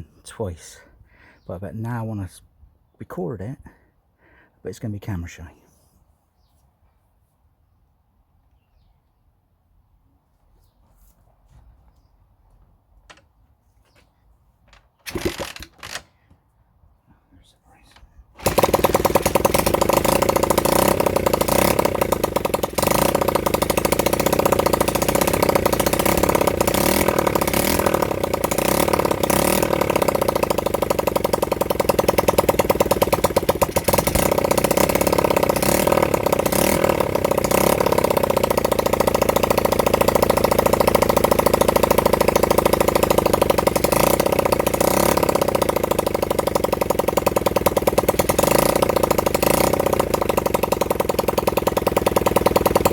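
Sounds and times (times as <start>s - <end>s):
motorcycle engine running: 18.4s - 52.9s.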